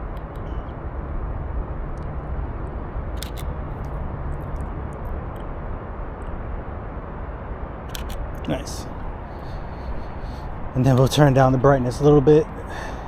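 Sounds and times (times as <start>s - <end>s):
wind buffeting microphone: 0.0s - 13.0s
quick sharp clicks: 3.2s - 5.5s, 7.9s - 8.2s.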